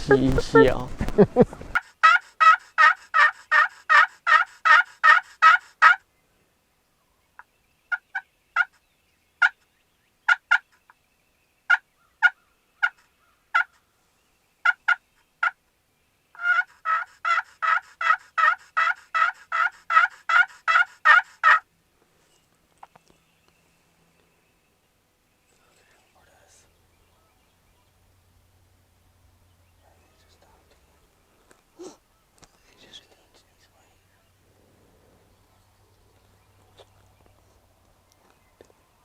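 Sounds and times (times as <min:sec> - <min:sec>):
turkey yelping: 0:01.8 - 0:06.0, 0:16.4 - 0:21.6.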